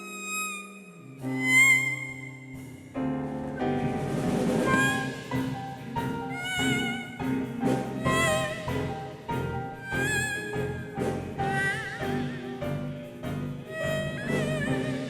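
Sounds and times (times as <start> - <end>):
traditional ensemble with wavering melody: 3.9 - 15.0.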